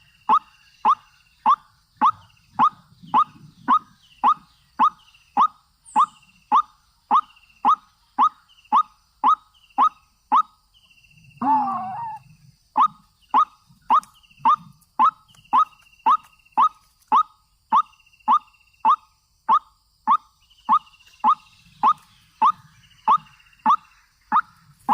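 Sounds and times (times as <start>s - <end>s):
waterhen calling: 11.4s - 12.2s.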